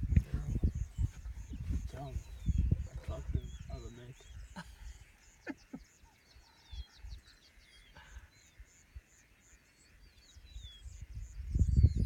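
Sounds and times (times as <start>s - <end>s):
low rumble on microphone: 0.0s - 4.5s, 10.6s - 12.0s
birds twittering: 0.0s - 12.0s.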